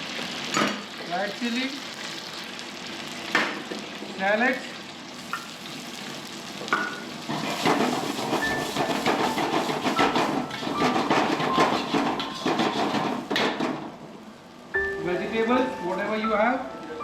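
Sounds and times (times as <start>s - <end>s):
food sizzling in hot oil: 0.0s - 17.0s
metal spatula scraping a pan: 7.3s - 13.2s.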